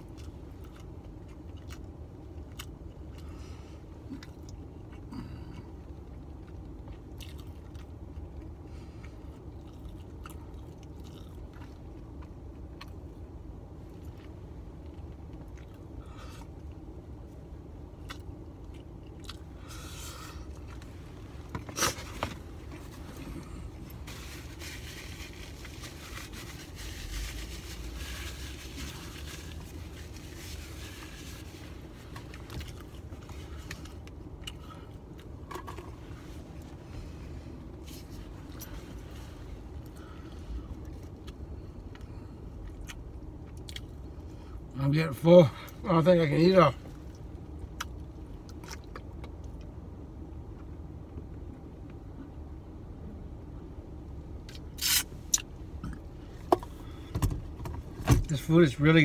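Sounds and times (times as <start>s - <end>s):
low hum inside car: 0.0s - 59.0s
person chewing: 0.1s - 3.4s, 4.0s - 5.7s, 6.4s - 13.1s, 13.9s - 16.8s, 18.0s - 20.9s, 28.0s - 35.4s, 40.8s - 44.0s.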